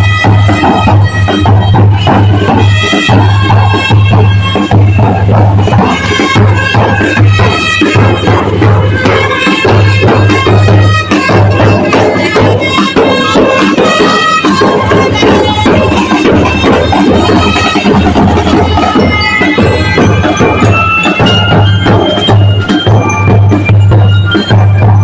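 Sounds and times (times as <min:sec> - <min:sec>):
brass melody: 0:00.0 - 0:23.3
drum beat with bass drum: 0:00.0 - 0:25.0.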